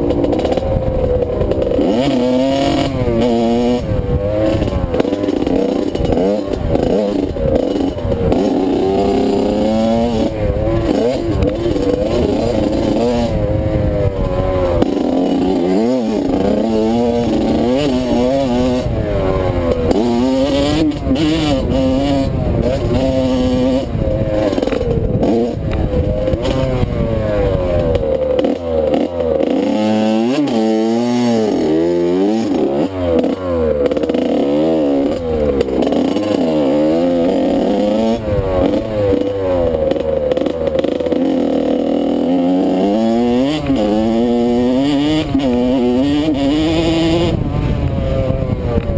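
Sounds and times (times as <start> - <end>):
motorcycle engine revving: 0.0 - 48.9
wind rushing over helmet: 10.2 - 15.4, 18.6 - 28.4, 47.1 - 48.9.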